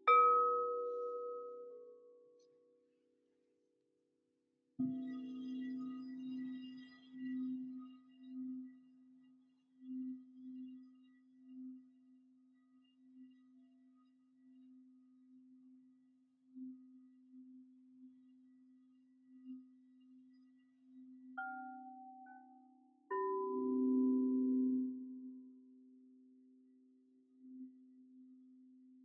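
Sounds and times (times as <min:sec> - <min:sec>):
low singing bowl tone: 0:16.6 - 0:26.6.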